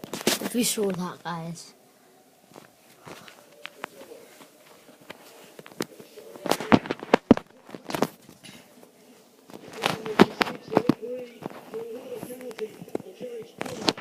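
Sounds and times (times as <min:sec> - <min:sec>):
fireworks crackling and popping: 0:05.6 - 0:08.2, 0:09.5 - 0:14.0.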